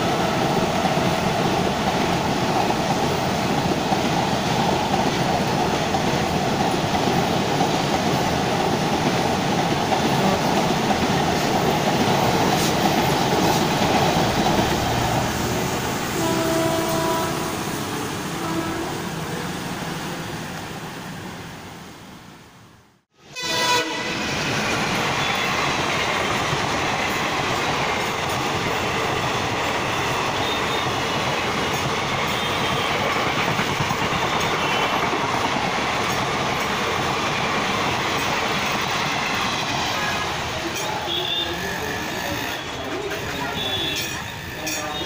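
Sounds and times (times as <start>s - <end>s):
train wheels rumbling: 0.0s - 21.4s, 23.3s - 45.0s
train horn: 16.1s - 17.7s, 18.3s - 19.1s, 23.2s - 24.3s, 32.3s - 33.0s, 41.0s - 45.0s.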